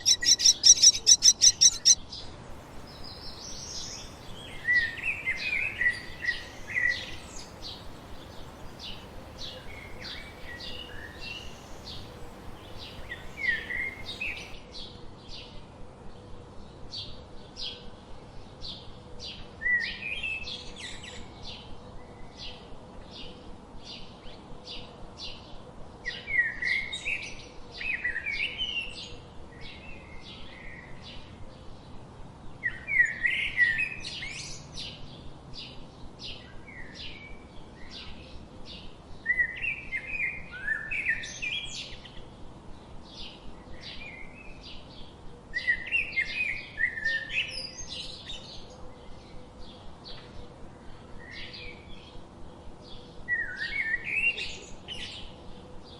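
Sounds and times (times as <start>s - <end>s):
bird song bursts: 0.0s - 2.0s, 2.7s - 14.6s
birds chirping: 0.0s - 2.0s, 2.6s - 14.6s.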